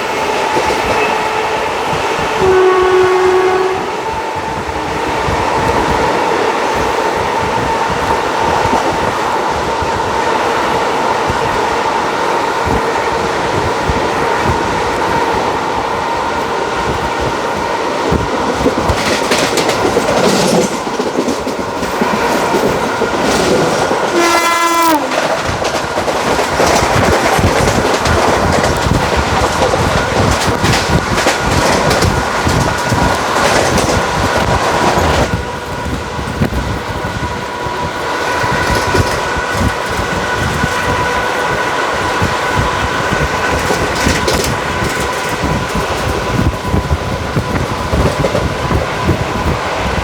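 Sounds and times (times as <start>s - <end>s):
train wheels clickety-clack: 0.0s - 50.0s
train horn blast: 0.9s - 5.3s, 24.0s - 25.3s.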